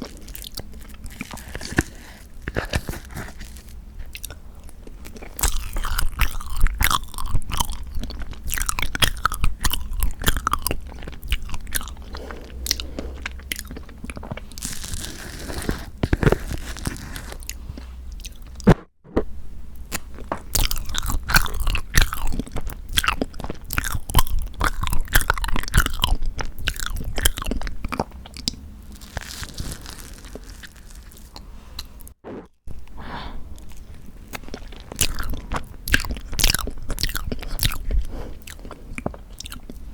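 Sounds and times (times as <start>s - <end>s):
wet chewing and mouth smacks: 33.6s - 39.9s.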